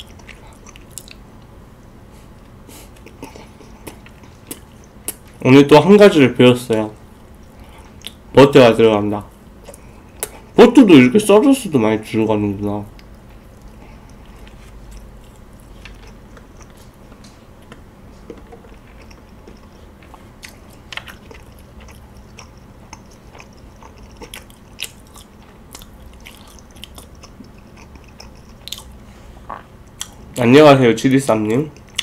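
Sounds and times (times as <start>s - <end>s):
person chewing toast: 0.0s - 1.2s, 2.4s - 5.4s, 13.0s - 30.4s
faint low hum: 0.0s - 32.0s
toast crunching: 13.0s - 28.9s.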